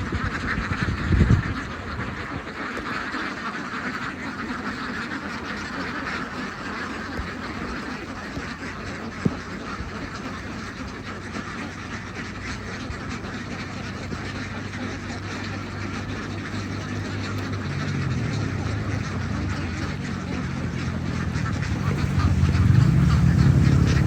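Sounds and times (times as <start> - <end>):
ducks quacking: 0.0 - 24.0.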